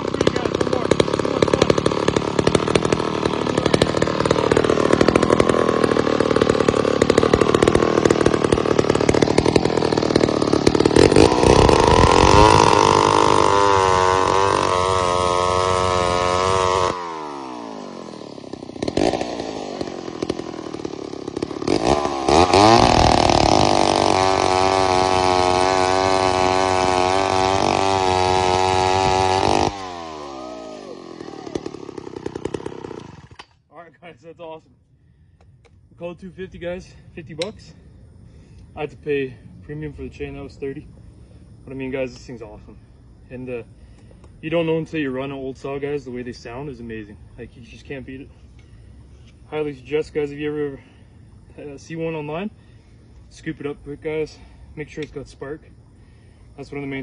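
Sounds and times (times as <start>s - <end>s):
chainsaw revving and idling: 0.0s - 33.7s, 43.3s - 57.0s.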